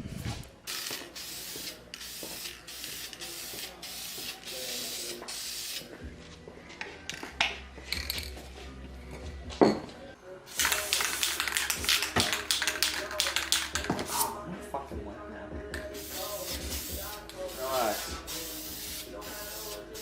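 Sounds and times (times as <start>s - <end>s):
spray can hissing bursts: 0.7s - 5.9s, 10.5s - 14.3s, 16.0s - 20.0s.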